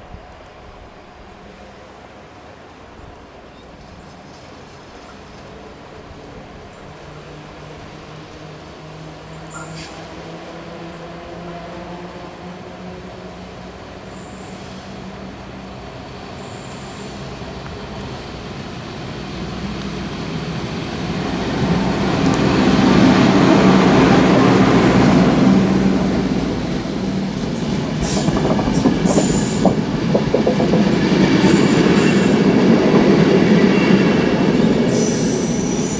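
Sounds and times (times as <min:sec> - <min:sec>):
electric locomotive rumble: 0:04.0 - 0:35.9
train wheel clicks: 0:27.9 - 0:31.9.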